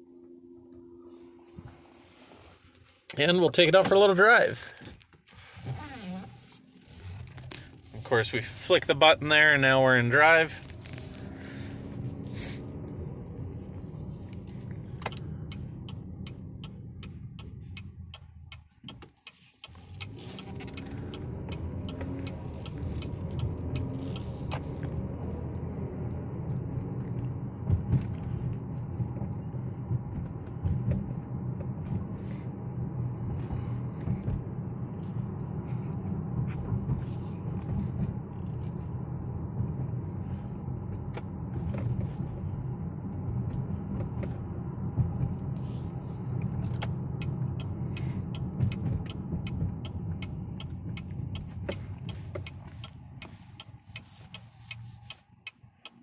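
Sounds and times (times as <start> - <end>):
road and drivetrain rumble: 0.0 - 56.0
regular ticking: 12.9 - 34.5, 46.3 - 56.0.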